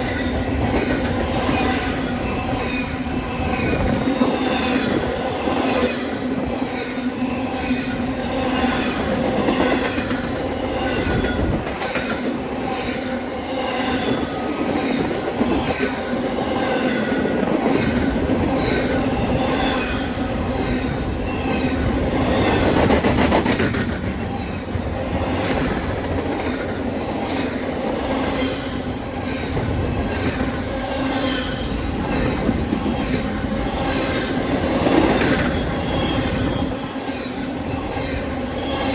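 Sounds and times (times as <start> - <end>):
train wheels rumbling on rails: 0.0 - 38.9
high-pitched wheel squeals: 35.2 - 37.0.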